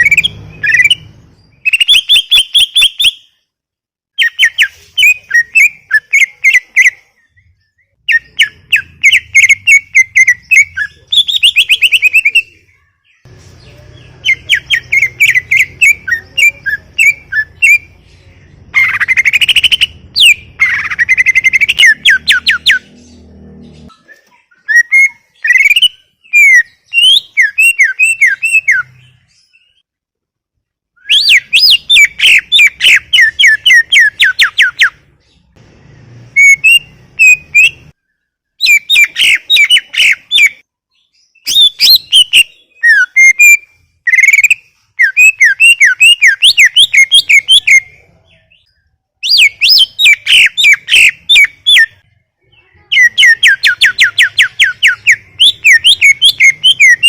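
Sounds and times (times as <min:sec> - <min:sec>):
bird singing falling whistles: 0:00.0 - 0:03.4, 0:24.6 - 0:29.8, 0:31.0 - 0:35.0, 0:38.6 - 0:40.6, 0:41.4 - 0:47.9, 0:49.2 - 0:52.0, 0:52.9 - 0:57.0.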